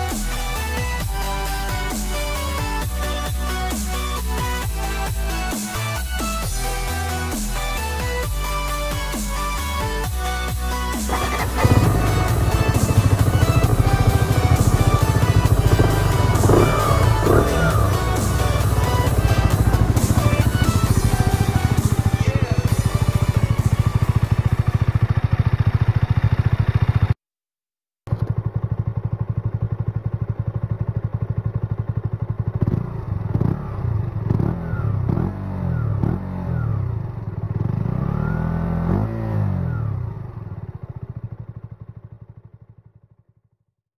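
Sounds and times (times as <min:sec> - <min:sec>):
motorcycle engine idling: 0:00.0 - 0:27.2, 0:28.1 - 0:43.7
engine revving: 0:10.7 - 0:27.1, 0:32.5 - 0:40.7.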